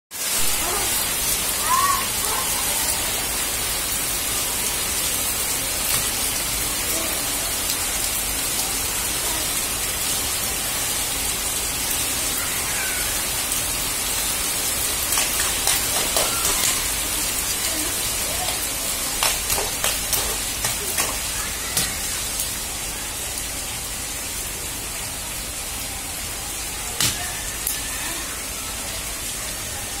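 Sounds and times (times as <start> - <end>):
heavy rain on concrete roof: 0.1 - 30.0
sharp water taps and splashes: 15.0 - 17.0, 18.3 - 22.5, 27.0 - 27.8.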